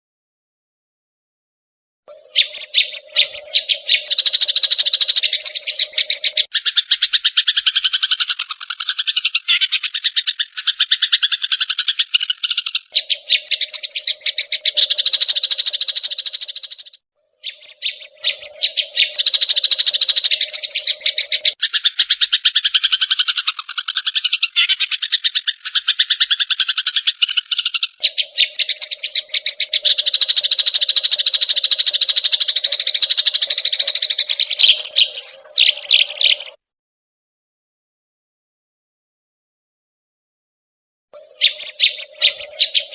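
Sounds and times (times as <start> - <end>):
sparrows chattering harshly: 2.1 - 36.6, 41.2 - 42.9.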